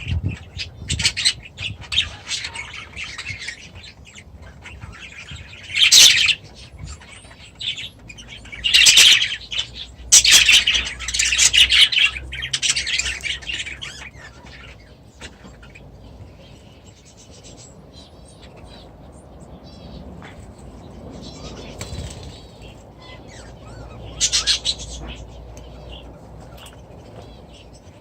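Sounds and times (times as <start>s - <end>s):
birds chirping and calling: 0.0s - 28.0s.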